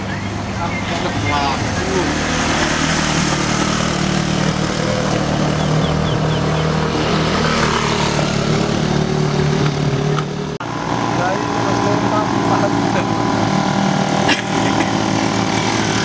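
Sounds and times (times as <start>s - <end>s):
motorcycle engines climbing uphill: 0.0s - 16.0s.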